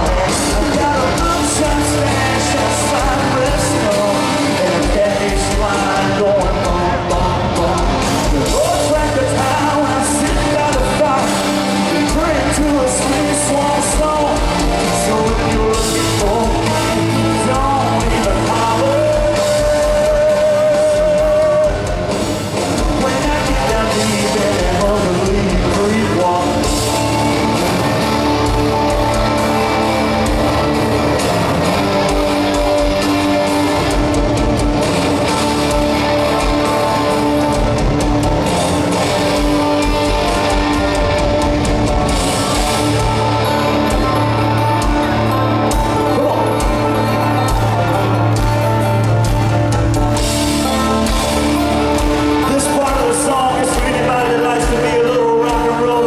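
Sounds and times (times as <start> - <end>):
drum beat: 0.0 - 56.0
electric guitars: 0.0 - 56.0
person singing: 0.0 - 56.0
crowd shouting: 25.8 - 56.0.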